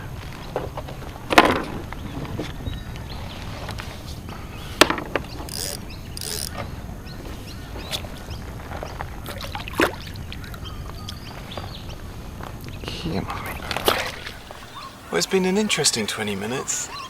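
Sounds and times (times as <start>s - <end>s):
fishing reel clicking and rattling: 5.5s - 6.6s.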